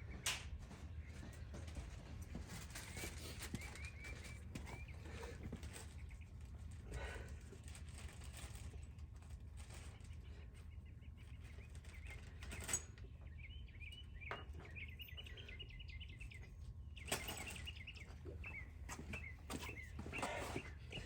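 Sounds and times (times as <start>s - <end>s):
bird chirping: 10.8s - 21.0s.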